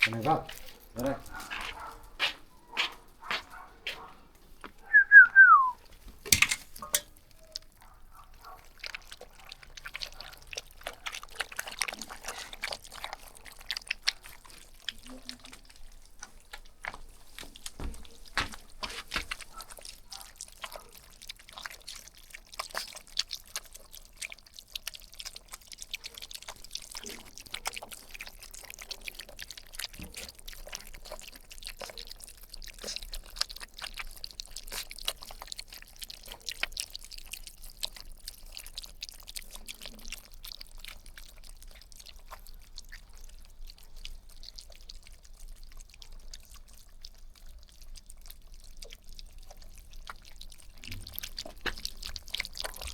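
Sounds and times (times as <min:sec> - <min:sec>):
puppy licking: 0:00.0 - 0:52.9
puppy whimper: 0:04.8 - 0:05.7.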